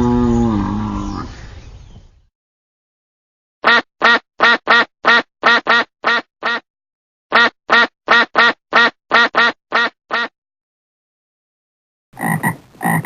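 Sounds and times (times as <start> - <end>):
duck quacking: 3.6 - 6.6, 7.3 - 10.3, 12.2 - 13.0.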